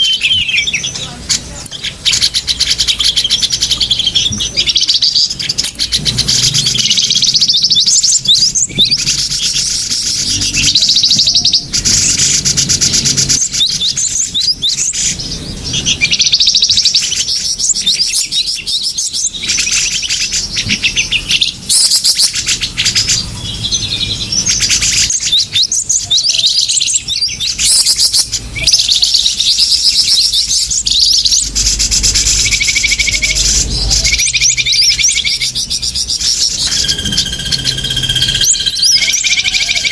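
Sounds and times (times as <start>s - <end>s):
small songbirds chirping and trilling: 0.0s - 39.9s.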